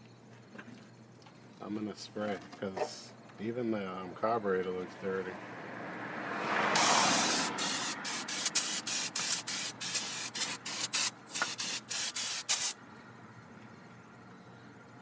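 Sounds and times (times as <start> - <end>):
aerosol spray hissing: 6.8 - 12.8.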